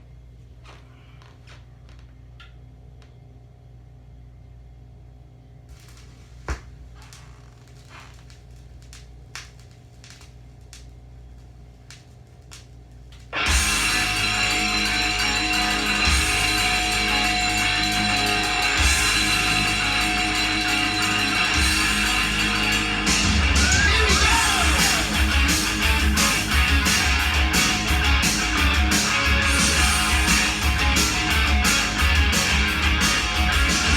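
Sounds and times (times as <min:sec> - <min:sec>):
vinyl record hum: 0:04.4 - 0:33.9
rock music with guitar: 0:13.4 - 0:33.9.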